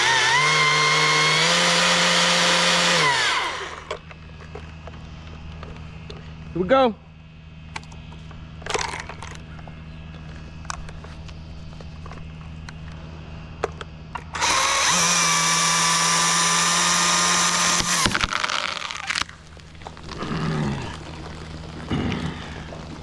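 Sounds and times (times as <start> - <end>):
chainsaw running: 0.0 - 4.0, 14.3 - 19.3.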